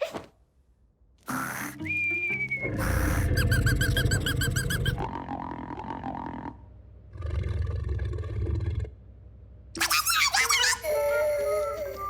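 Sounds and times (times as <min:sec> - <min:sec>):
rhythmic squeaks: 0:01.4 - 0:05.0.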